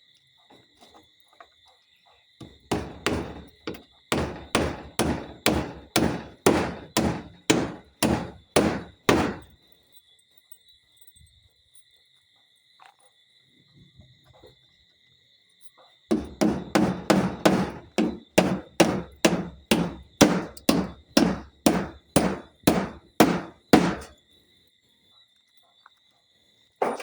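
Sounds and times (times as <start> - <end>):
hammer driving nails: 2.4 - 9.5, 16.1 - 24.1.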